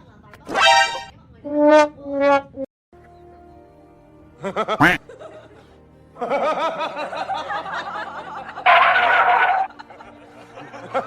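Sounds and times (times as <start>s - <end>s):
music: 0.1s - 1.2s, 2.9s - 11.0s
people laughing: 4.4s - 11.0s.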